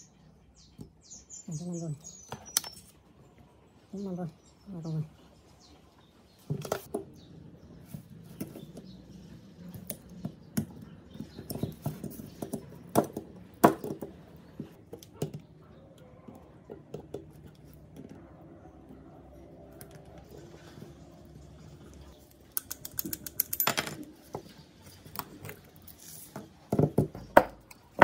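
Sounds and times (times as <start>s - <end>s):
tin snips snapping metal: 22.5s - 23.7s.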